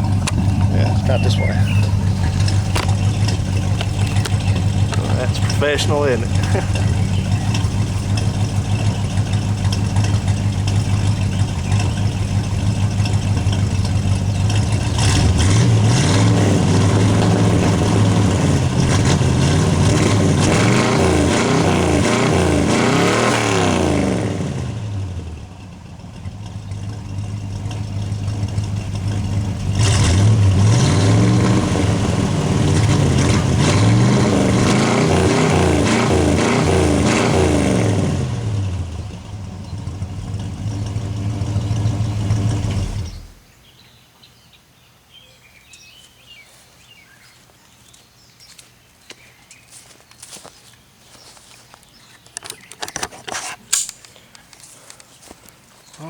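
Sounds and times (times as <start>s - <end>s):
car engine idling and revving: 0.0s - 43.5s.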